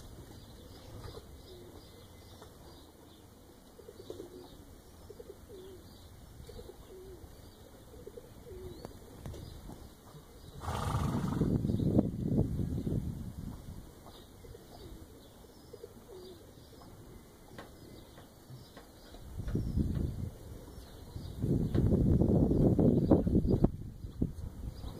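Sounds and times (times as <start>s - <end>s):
distant bird calling: 0.4s - 9.2s, 14.1s - 21.3s.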